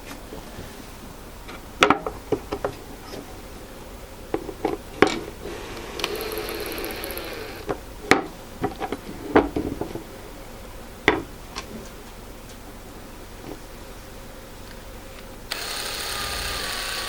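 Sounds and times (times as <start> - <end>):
knocks of wooden parts and tools: 1.5 - 2.8, 7.7 - 10.0, 11.1 - 11.7
powered screwdriver running: 5.5 - 7.6, 15.5 - 17.0.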